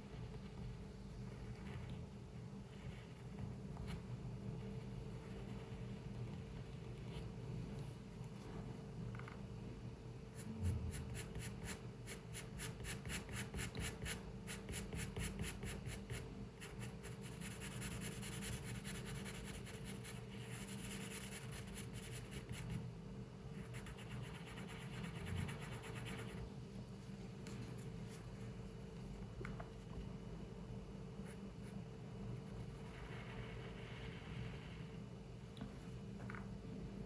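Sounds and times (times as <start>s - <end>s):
pencil scratching on paper: 10.4s - 22.8s, 23.6s - 26.4s.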